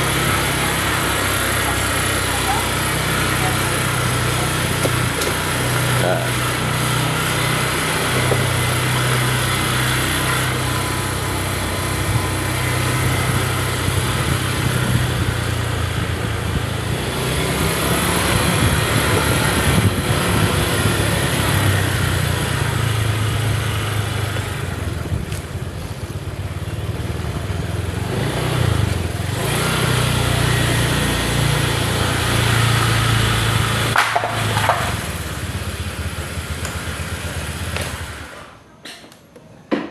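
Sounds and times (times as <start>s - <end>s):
small motorcycle engine running: 0.0s - 38.6s
road noise: 0.0s - 39.8s
wind noise: 13.8s - 21.8s.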